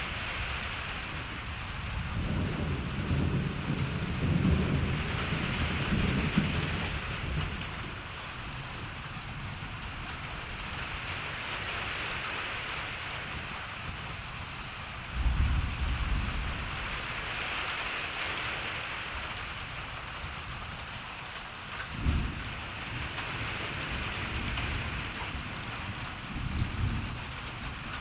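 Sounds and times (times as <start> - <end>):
thunder rumbling: 0.0 - 11.1, 15.0 - 18.1, 21.8 - 28.0
rain hissing: 0.0 - 28.0.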